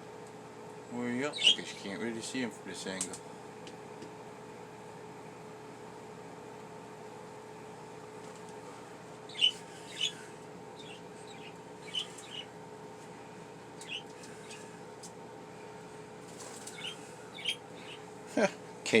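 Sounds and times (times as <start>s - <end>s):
steady low hum: 0.0s - 19.0s
budgerigars chirping: 1.3s - 1.9s, 9.3s - 10.2s, 10.8s - 12.5s, 13.8s - 14.6s, 16.7s - 18.0s.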